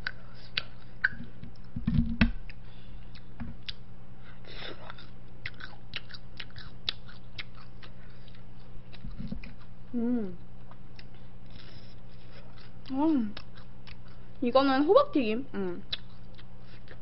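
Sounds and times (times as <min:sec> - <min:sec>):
person chewing food: 0:00.0 - 0:01.7, 0:02.4 - 0:03.8, 0:04.6 - 0:14.4, 0:15.8 - 0:17.0
wet mouth clicks and smacks: 0:00.0 - 0:01.7
steady low hum: 0:00.0 - 0:17.0
low thumps: 0:01.4 - 0:02.4.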